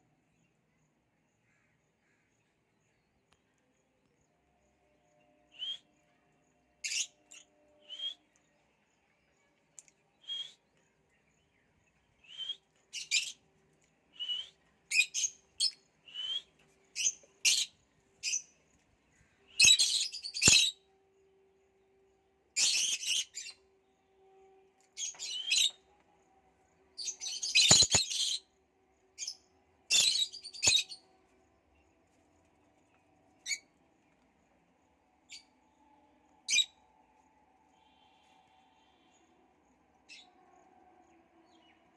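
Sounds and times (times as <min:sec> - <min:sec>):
lovebirds chirping: 0:27.0 - 0:28.4, 0:29.2 - 0:31.1.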